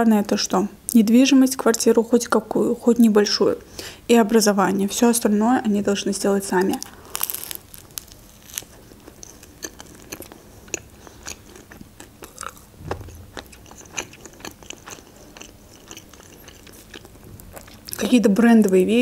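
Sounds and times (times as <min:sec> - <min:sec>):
crunchy chewing: 0:06.6 - 0:18.1.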